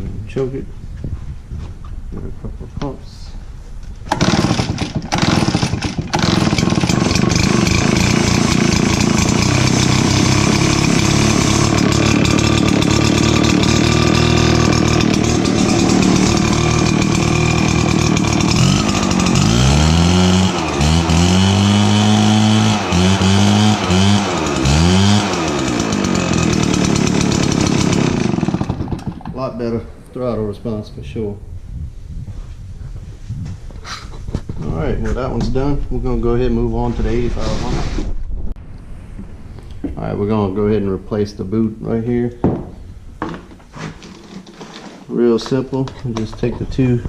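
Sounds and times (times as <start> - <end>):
leaf blower engine revving: 4.1 - 29.8.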